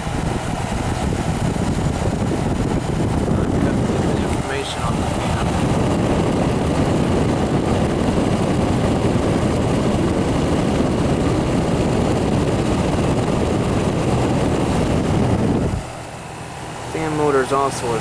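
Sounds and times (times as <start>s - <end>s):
dehumidifier running: 0.0s - 18.0s.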